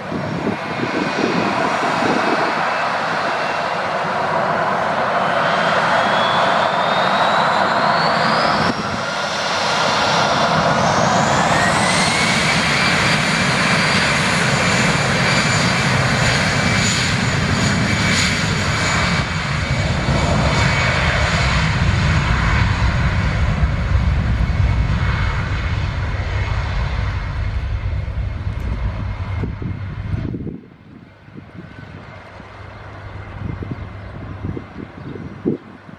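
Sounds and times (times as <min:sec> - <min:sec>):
jet engines spooling up: 0:00.0 - 0:34.6
low rumble: 0:21.6 - 0:34.8.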